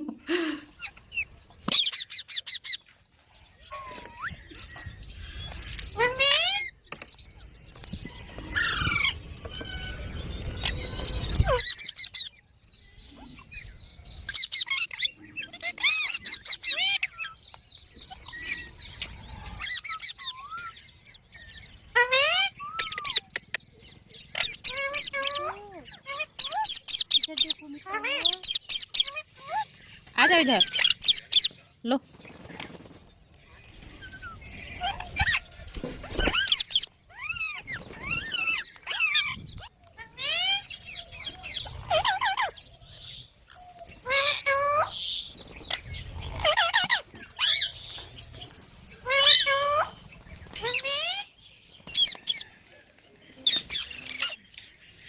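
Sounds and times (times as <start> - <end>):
parrot whistling and screeching: 8.5 - 12.3, 18.3 - 20.8, 21.9 - 23.2.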